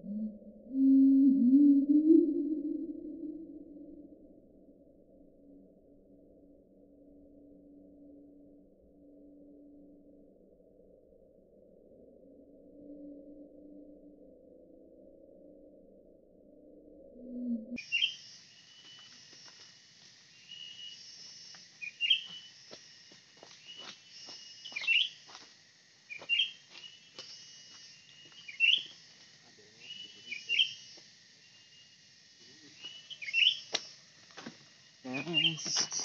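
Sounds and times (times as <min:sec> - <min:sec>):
sharp rising bird chirps: 0:17.3 - 0:19.2, 0:20.3 - 0:22.7, 0:23.6 - 0:25.2, 0:26.1 - 0:29.0, 0:29.8 - 0:32.0, 0:32.6 - 0:34.0.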